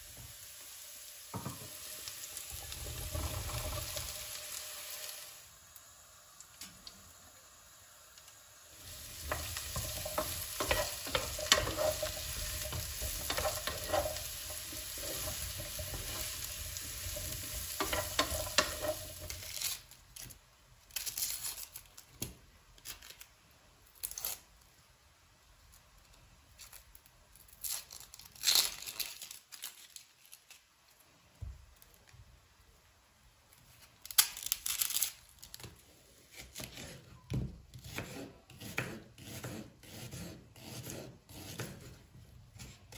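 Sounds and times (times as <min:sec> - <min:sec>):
food sizzling in a frying pan: 0:00.0 - 0:19.9
utensil scraping a pan: 0:08.8 - 0:19.8
kitchen utensils clattering: 0:09.2 - 0:19.5.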